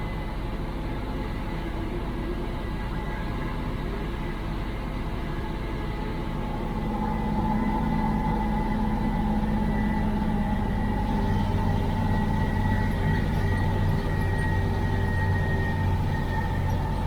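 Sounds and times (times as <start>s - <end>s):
diesel truck engine running: 6.3s - 17.0s.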